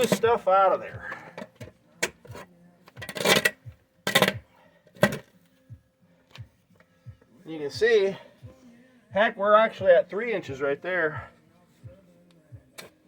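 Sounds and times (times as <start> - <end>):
metal shovel scraping dirt: 0.0 - 1.7, 2.3 - 4.4.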